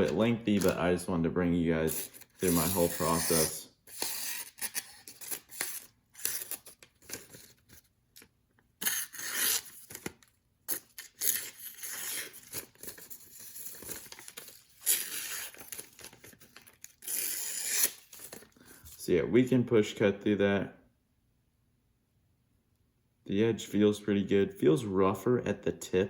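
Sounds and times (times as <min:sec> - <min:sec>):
knife blade cutting paper: 0:01.9 - 0:07.8, 0:08.8 - 0:18.4.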